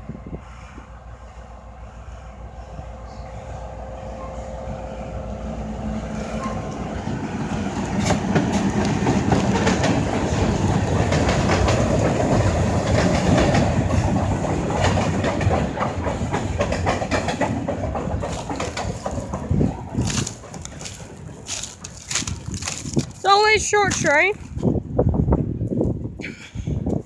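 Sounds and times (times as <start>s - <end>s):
low train rumble: 0.0s - 27.0s
train wheels clacking on rails: 4.1s - 22.9s.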